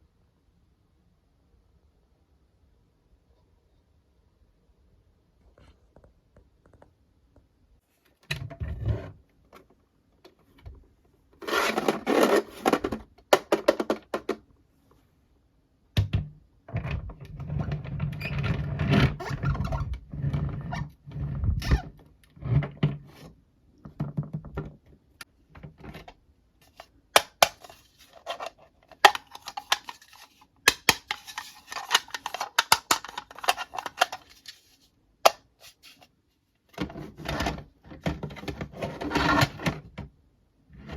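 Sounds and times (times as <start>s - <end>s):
plastic toy pieces clicking and scraping: 26.6s - 36.1s.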